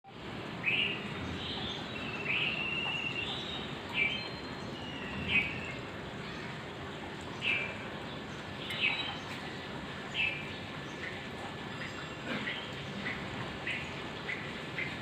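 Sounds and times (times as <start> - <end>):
bird chirping: 0.6 - 6.5, 7.3 - 9.5.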